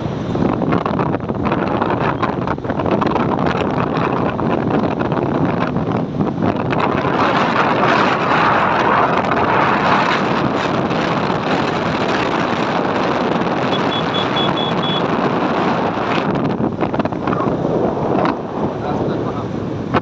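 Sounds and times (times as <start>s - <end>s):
wind rushing over microphone: 0.0s - 20.0s
motorbike engine running: 13.1s - 15.1s
high beeps: 13.7s - 15.0s.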